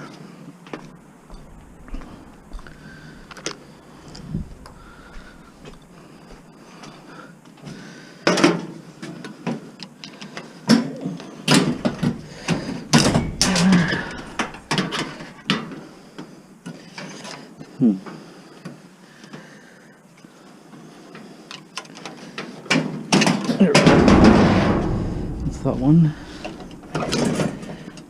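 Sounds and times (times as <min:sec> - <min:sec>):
hand tools clanking on metal: 0:11.6 - 0:15.6, 0:23.6 - 0:28.0.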